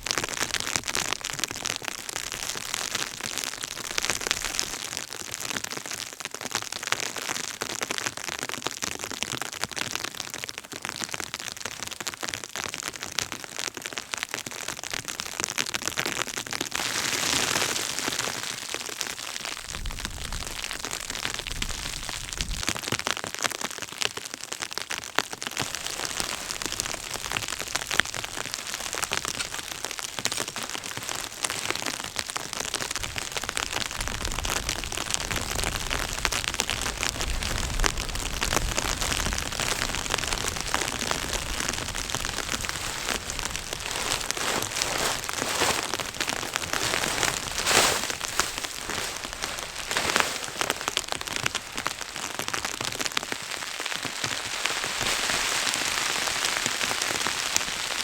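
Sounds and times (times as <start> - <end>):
steady patter of rain: 0.0 - 58.0
low wind rumble: 34.0 - 52.1.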